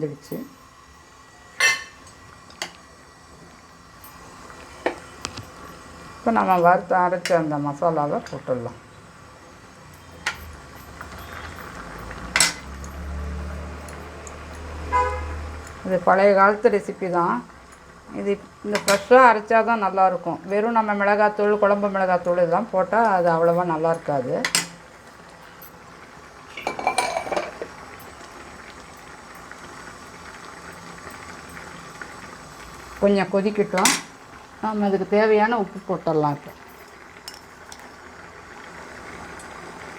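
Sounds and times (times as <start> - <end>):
spoon clinking against pot: 26.6 - 27.7.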